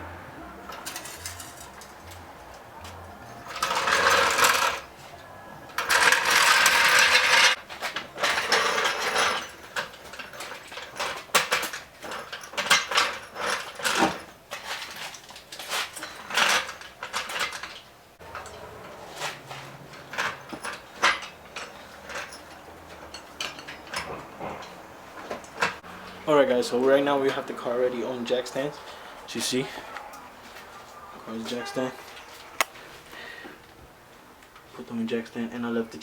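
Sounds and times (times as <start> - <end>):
metal clanking and rattling: 0.6 - 26.2.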